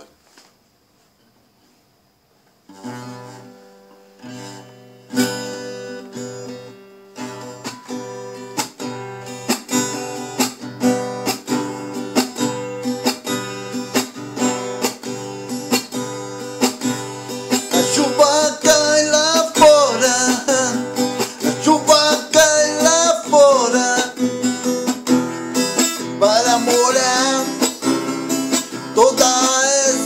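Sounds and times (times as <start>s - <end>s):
acoustic guitar strumming: 2.6s - 30.0s.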